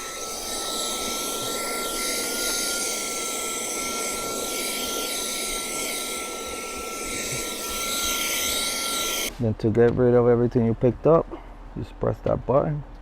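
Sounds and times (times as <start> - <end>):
handheld vacuum cleaner motor whine: 0.0 - 9.3
air rushing through nozzle: 0.0 - 9.4.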